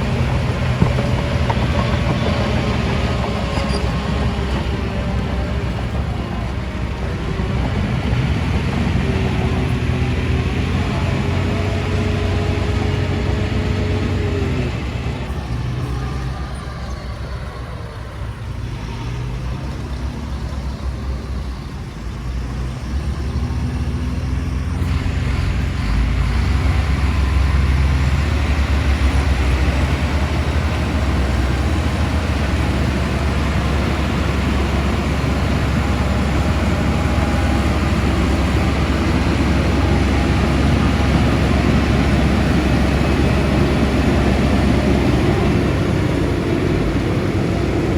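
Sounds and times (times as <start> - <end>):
heavy diesel machinery rumbling: 0.0 - 47.9.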